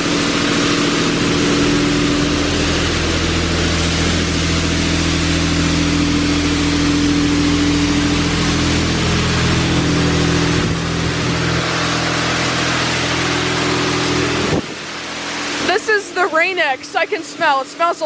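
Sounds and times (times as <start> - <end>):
low hum: 8.1 - 15.7.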